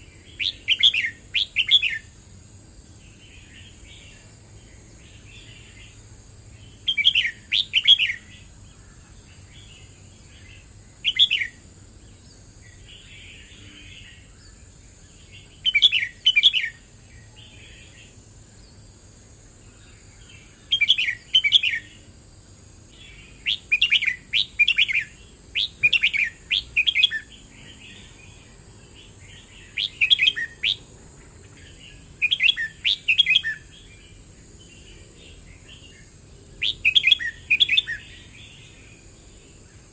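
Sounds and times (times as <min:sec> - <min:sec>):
bulbul singing: 0:00.0 - 0:02.2, 0:03.0 - 0:18.9, 0:19.5 - 0:22.1, 0:22.9 - 0:39.9.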